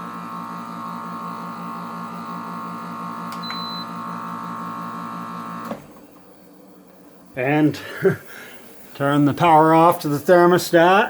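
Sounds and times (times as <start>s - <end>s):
air conditioner electrical hum: 0.0s - 11.0s
short high beep: 3.4s - 3.9s.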